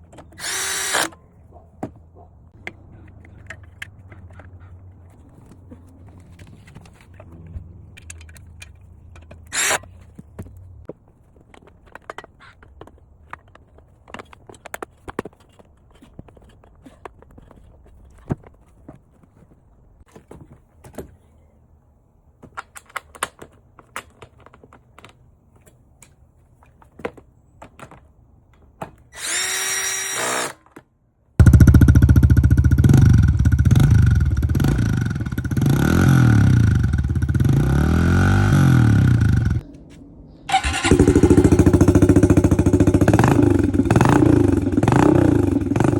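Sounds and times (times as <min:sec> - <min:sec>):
dirt bike engine revving: 0:31.4 - 0:39.6, 0:40.5 - 0:45.9.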